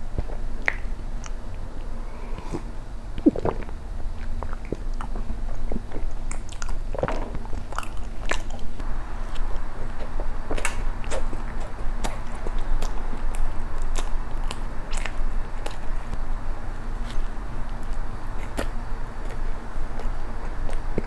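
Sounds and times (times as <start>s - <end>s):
wet mouth smacks while chewing: 0.6s - 2.6s
person swallowing milk: 2.4s - 4.9s.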